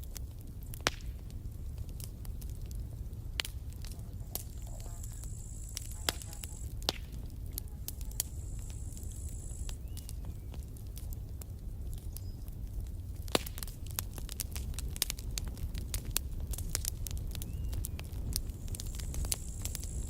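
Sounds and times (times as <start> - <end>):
campfire crackling and popping: 0.0 - 20.0
low steady rumble: 0.0 - 20.0
thin high whine: 4.0 - 6.7, 7.7 - 9.8.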